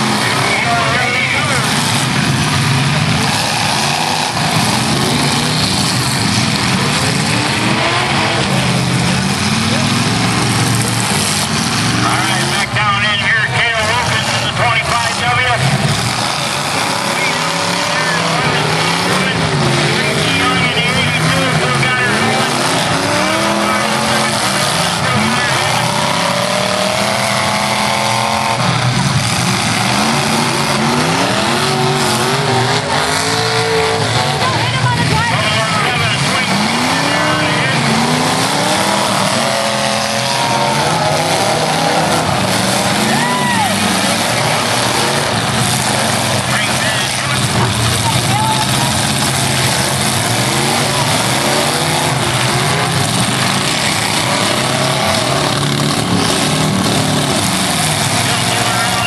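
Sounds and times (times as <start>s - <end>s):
car engines revving hard: 0.0s - 59.0s.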